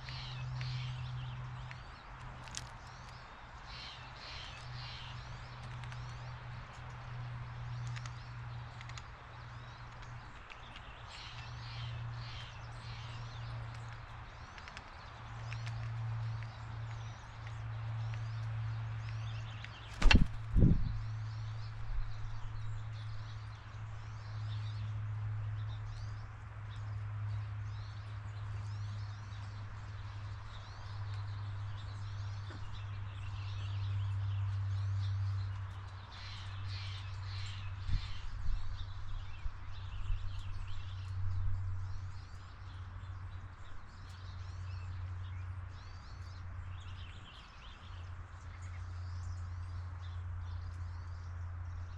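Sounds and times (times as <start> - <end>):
small birds chirping: 0.0 - 51.9
sharp knocks: 20.0 - 20.7.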